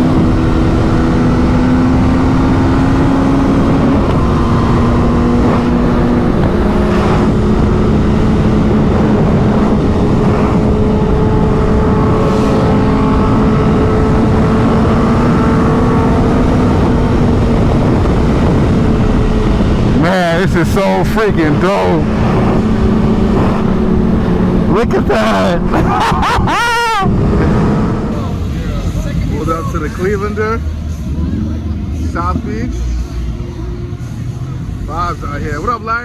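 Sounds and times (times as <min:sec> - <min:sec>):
motorcycle engine cruising: 0:00.0 - 0:36.0.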